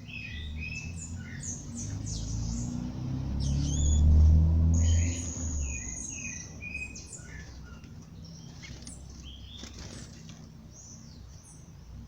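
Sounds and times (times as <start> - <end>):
songbirds singing: 0.0 - 12.0.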